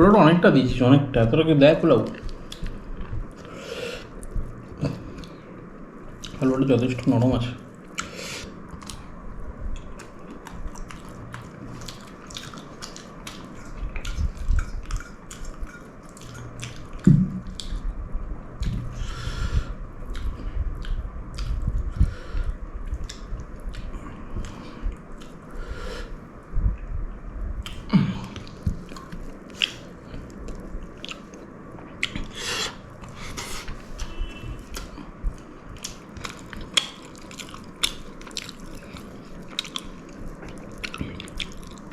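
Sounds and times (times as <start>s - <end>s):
person chewing food: 2.1s - 6.4s, 7.7s - 17.9s, 18.6s - 26.2s, 27.6s - 41.9s
mouth clicks and smacks: 30.5s - 41.9s.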